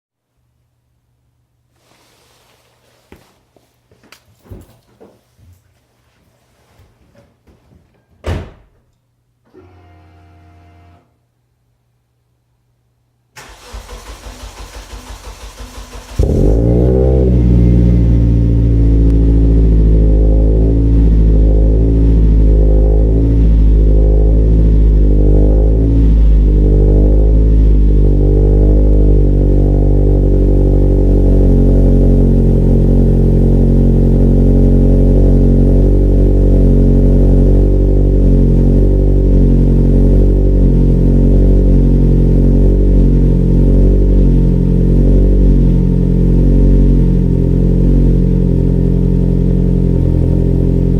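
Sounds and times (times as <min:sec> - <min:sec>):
car engine idling: 0:13.4 - 0:50.9.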